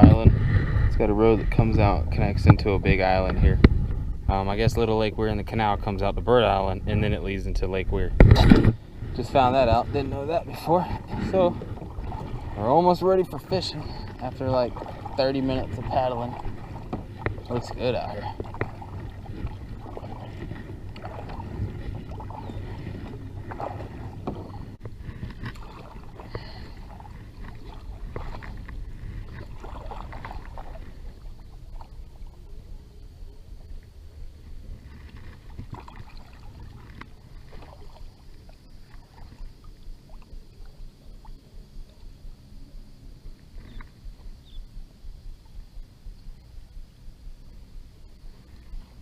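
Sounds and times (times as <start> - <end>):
steady low rumble: 0.0 - 37.4, 39.6 - 49.0
paddle splashing in water: 8.1 - 32.7, 33.5 - 42.1.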